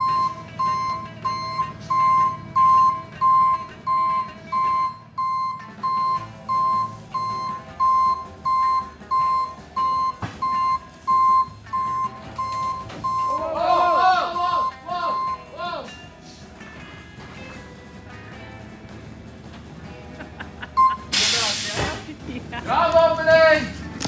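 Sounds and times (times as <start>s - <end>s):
reversing alarm beeping: 0.0s - 16.0s, 20.7s - 21.9s
truck engine running: 0.0s - 24.0s.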